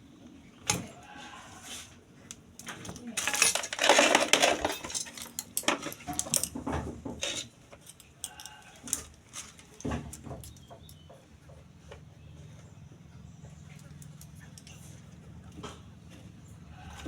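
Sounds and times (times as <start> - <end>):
small hard objects clinking: 2.6 - 6.6.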